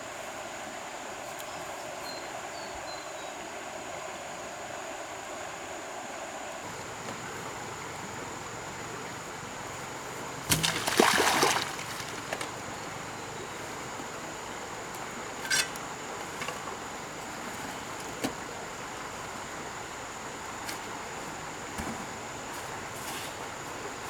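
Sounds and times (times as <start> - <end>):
water splashing: 10.4 - 12.9
water running: 10.5 - 13.0.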